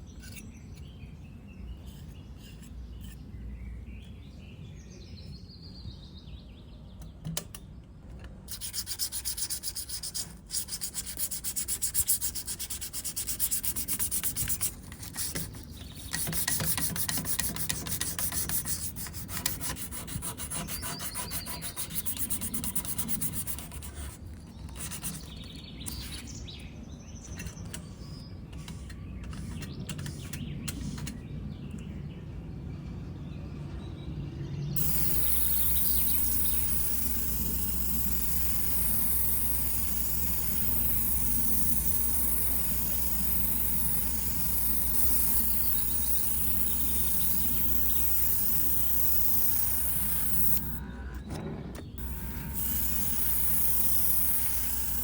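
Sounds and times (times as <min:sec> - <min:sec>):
abrasive sanding: 0:08.5 - 0:24.2, 0:34.8 - 0:50.8, 0:52.0 - 0:55.0.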